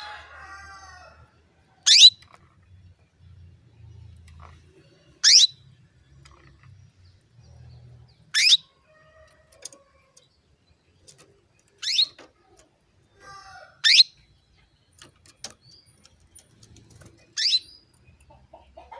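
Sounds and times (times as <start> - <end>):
soft bird chatter: 0.0 - 18.9
canary calling: 1.8 - 2.4, 5.1 - 6.6, 8.2 - 8.9, 11.7 - 12.4, 13.0 - 14.3, 17.3 - 18.9.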